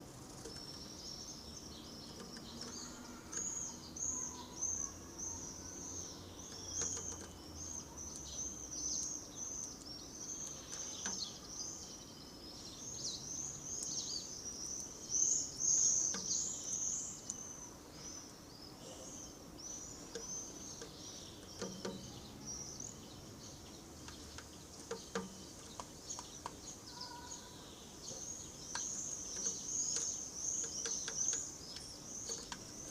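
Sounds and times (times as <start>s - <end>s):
songbirds chirping: 0.0s - 32.9s
faint clicks: 2.0s - 3.7s, 17.2s - 17.4s, 24.0s - 26.8s, 28.6s - 32.9s.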